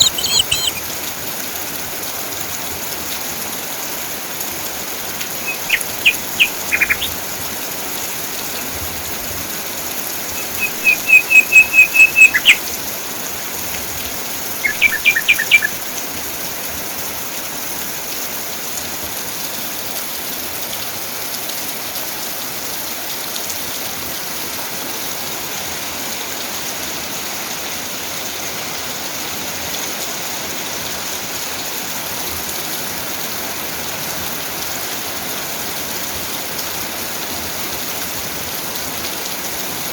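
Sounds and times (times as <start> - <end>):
bird singing repeated notes: 0.0 - 0.8, 5.4 - 7.2, 10.3 - 12.8, 14.6 - 15.9
rain falling: 0.0 - 39.9.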